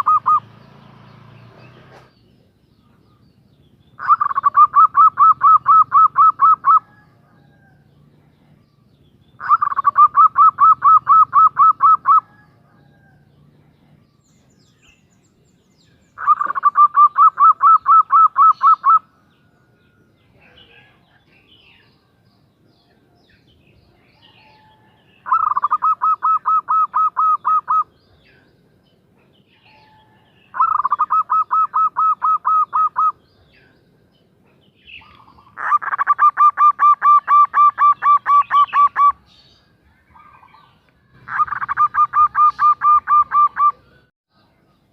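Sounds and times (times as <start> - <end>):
dove cooing: 0.0 - 0.4, 4.0 - 8.6, 9.4 - 13.2, 16.2 - 19.1, 24.2 - 28.1, 29.6 - 33.2, 35.0 - 39.3, 40.2 - 44.0.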